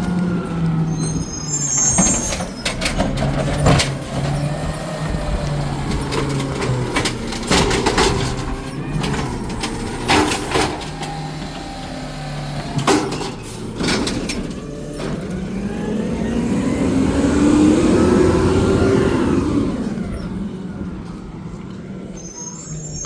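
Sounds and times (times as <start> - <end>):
diesel engine revving: 0.0 - 23.0
metal clanks and bangs: 1.8 - 11.8, 12.4 - 15.4.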